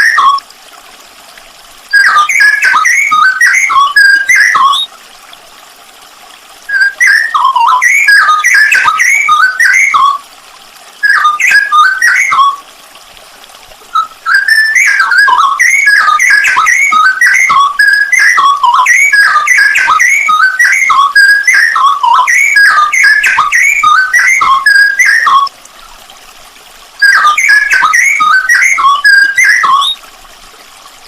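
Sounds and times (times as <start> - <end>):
bulbul singing whistled warbling: 0.0 - 0.4, 1.9 - 4.9, 6.7 - 10.2, 11.0 - 12.6, 13.9 - 25.5, 27.0 - 30.0.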